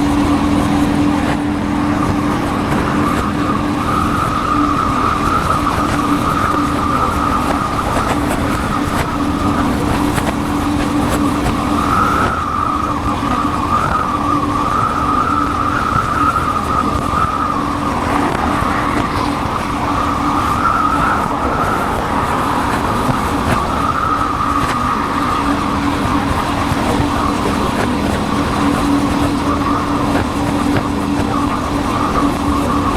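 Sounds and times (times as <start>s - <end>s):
motorcycle engine running: 0.0s - 32.9s
wind and road noise: 0.0s - 32.9s.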